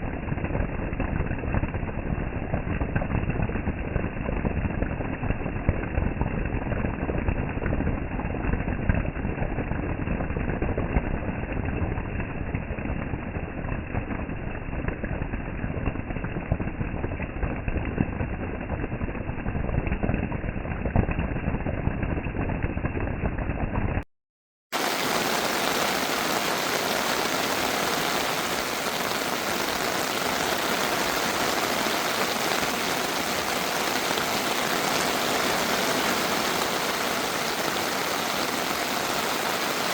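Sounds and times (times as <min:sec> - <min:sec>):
heavy downpour: 0:24.8 - 0:39.9.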